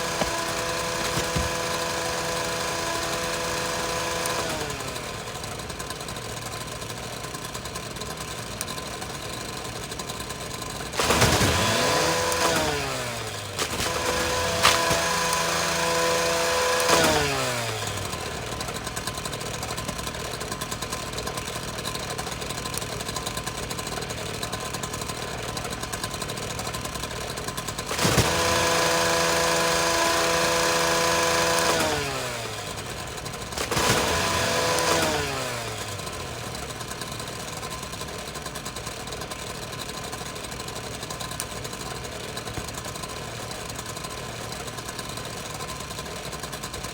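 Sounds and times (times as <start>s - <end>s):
rough machine noise: 0.0s - 5.5s, 11.0s - 19.4s, 27.8s - 37.3s
power tool motor running: 0.0s - 5.7s, 10.9s - 19.6s, 27.7s - 37.4s.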